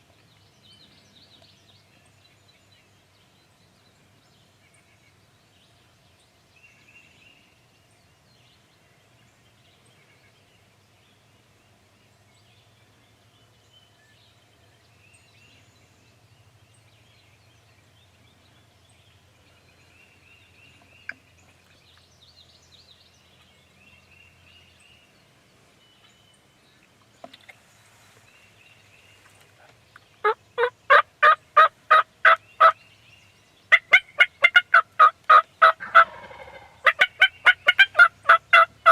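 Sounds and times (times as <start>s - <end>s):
bird rapid pulsed calls: 33.7s - 38.9s.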